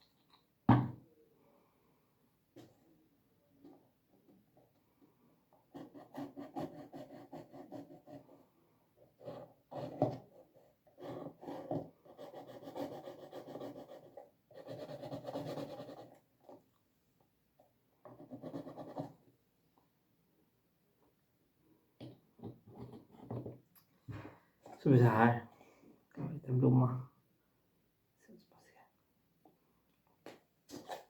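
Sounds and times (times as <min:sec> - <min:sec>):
pen scratching on paper: 0:05.7 - 0:08.4, 0:09.2 - 0:16.2, 0:18.1 - 0:19.2.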